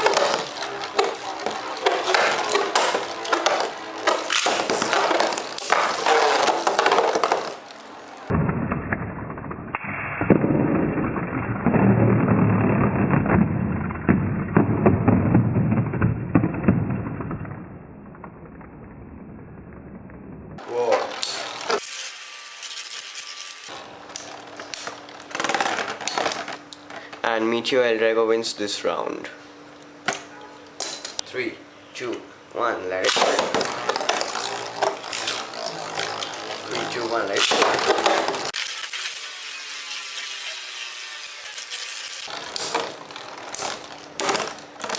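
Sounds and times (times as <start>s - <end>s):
spinning tops clashing: 21.8s - 23.7s, 38.6s - 42.3s.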